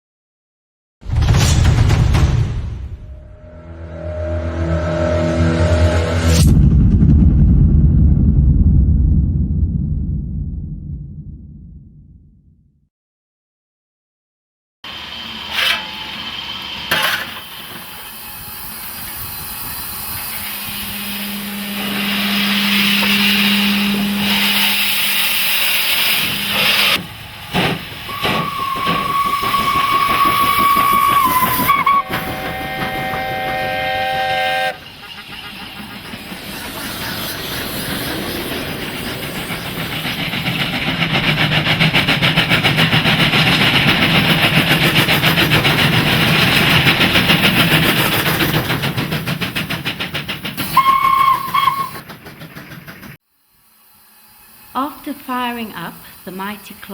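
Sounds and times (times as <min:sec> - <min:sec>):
single-note steam whistle: 0:03.1 - 0:06.5, 0:17.8 - 0:27.0, 0:28.1 - 0:35.6, 0:50.8 - 0:52.0
steam hissing: 0:14.9 - 0:56.9
fast even locomotive beat: 0:18.9 - 0:53.2.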